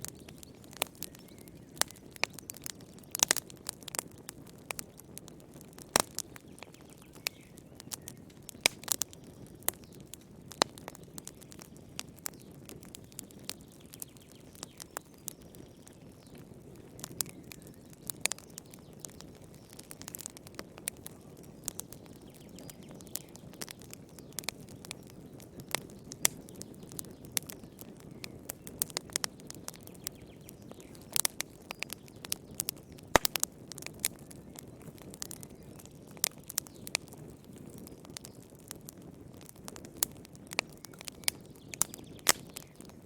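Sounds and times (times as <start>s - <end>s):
wood fire crackling: 0.0s - 43.0s.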